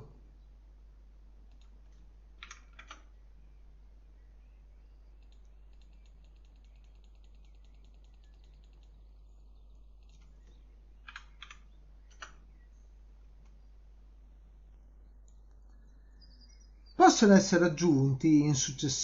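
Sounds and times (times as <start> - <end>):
low electrical hum: 0.0 - 19.0
faint ticks of scroll wheel: 5.2 - 9.0
mouse clicks: 5.2 - 9.1, 10.0 - 12.4.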